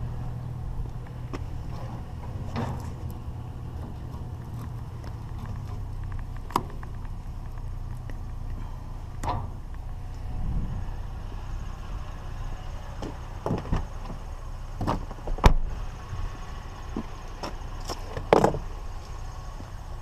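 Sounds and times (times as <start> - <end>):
steady low hum: 0.0 - 20.0
scrap metal knocks and clunks: 1.3 - 5.9.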